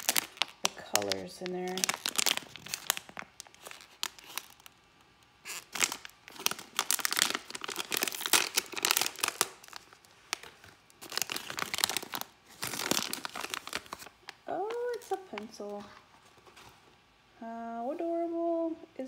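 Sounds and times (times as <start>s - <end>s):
plastic bag tearing and crinkling: 0.0s - 4.8s, 5.4s - 15.4s.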